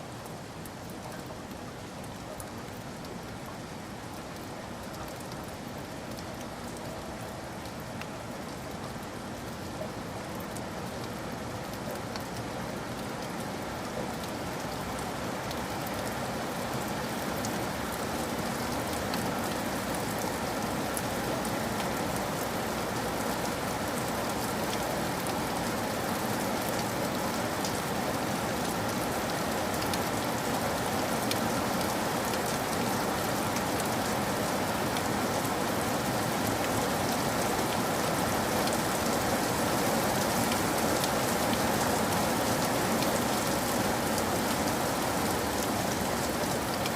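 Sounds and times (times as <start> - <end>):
raindrops ticking on surface: 0.0 - 46.9
steady rain falling: 0.0 - 46.9.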